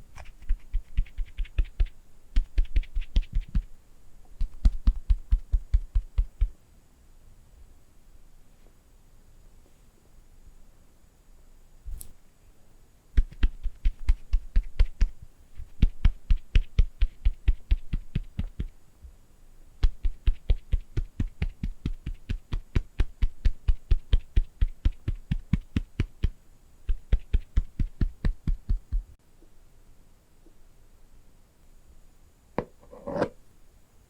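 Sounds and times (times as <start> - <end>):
fingertips tapping rapidly: 0.1 - 3.7, 4.4 - 6.5, 13.2 - 18.8, 19.8 - 29.1.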